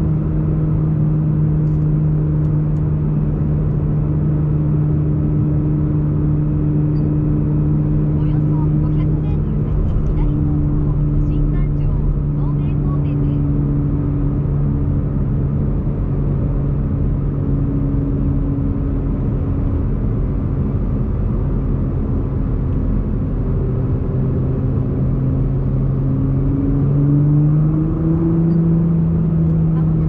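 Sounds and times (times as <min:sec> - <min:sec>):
car engine cruising: 0:00.0 - 0:30.0
tyre and road noise: 0:07.5 - 0:15.9.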